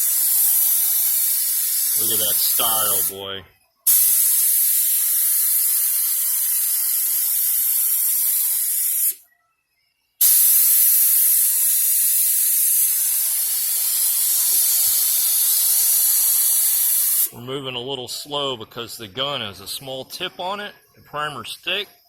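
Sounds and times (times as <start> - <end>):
paint spray gun hissing: 0.0 - 3.2, 3.9 - 9.2, 10.2 - 17.4.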